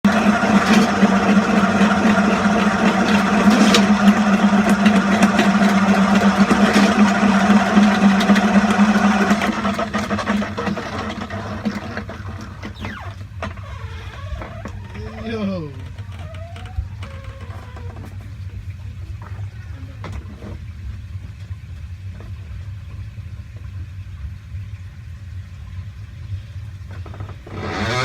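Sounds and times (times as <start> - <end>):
machine motor humming: 0.0 - 10.9.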